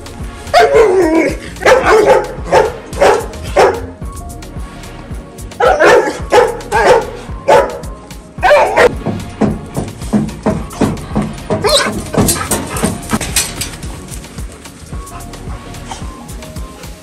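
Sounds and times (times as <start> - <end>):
background music: 0.0 - 17.0
dog barking: 0.6 - 4.0, 5.6 - 9.0, 11.6 - 13.1.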